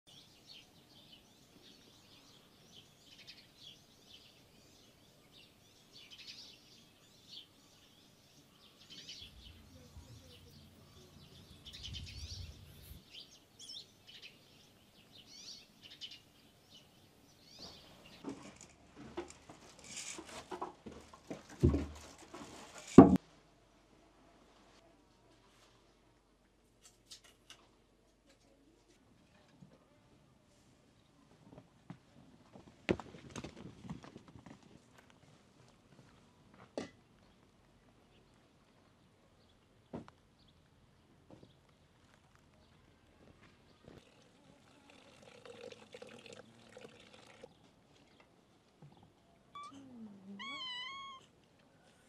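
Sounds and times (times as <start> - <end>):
small birds chirping: 0.1 - 18.2, 47.3 - 52.0
rustling: 17.6 - 23.2.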